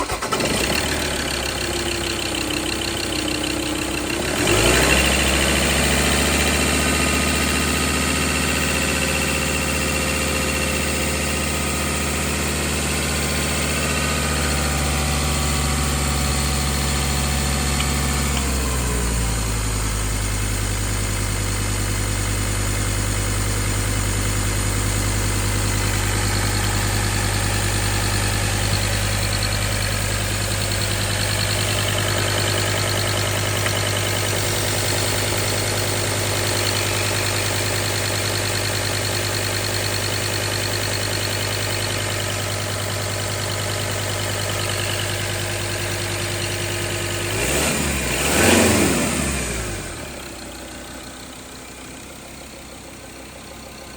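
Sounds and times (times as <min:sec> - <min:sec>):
diesel engine idling: 0:00.0 - 0:53.9.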